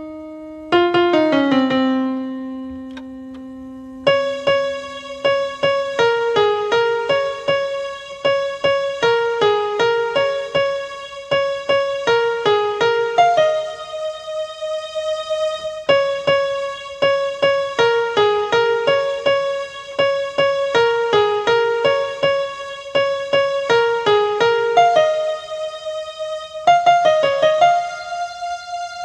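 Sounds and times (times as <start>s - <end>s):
electronic keyboard melody: 0.0s - 29.0s.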